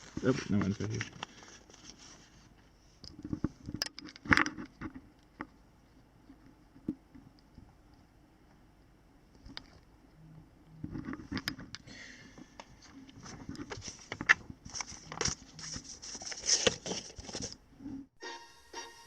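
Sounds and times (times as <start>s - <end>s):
paper and packaging rustling: 0.0s - 2.7s, 12.7s - 17.6s
background music: 18.2s - 19.0s.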